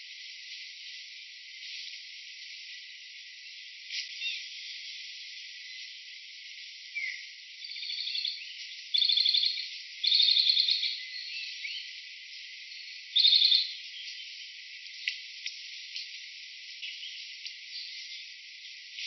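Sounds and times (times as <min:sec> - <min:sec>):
steady hiss: 0:00.0 - 0:09.0, 0:11.0 - 0:19.0
insects trilling: 0:00.0 - 0:19.0.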